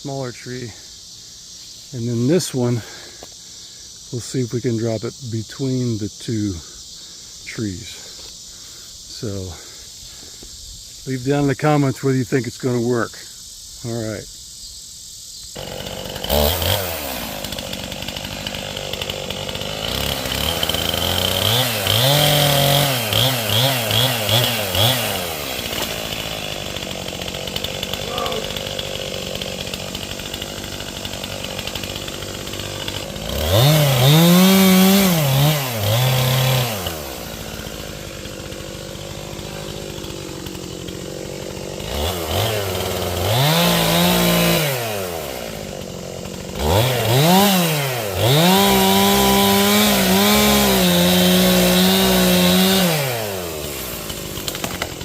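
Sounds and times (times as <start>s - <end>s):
chainsaw revving: 2.0s - 3.3s, 15.6s - 55.0s.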